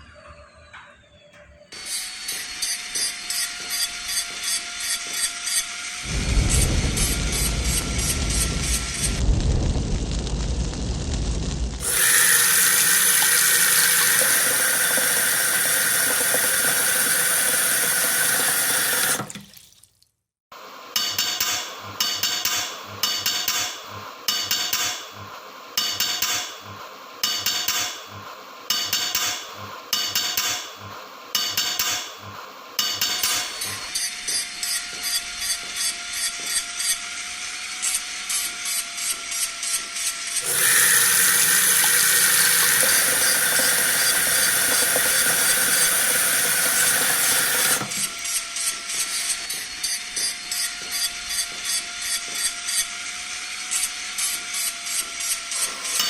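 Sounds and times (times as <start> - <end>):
grinder hissing on knife blade: 11.8 - 19.3, 33.3 - 56.0.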